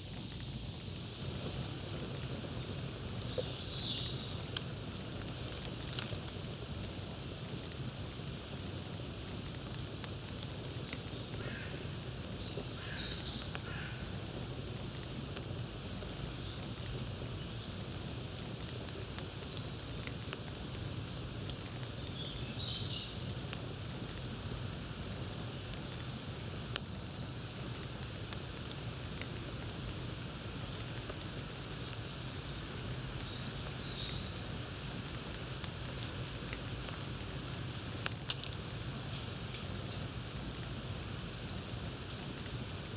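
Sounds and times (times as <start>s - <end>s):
campfire crackling and popping: 0.0s - 42.9s.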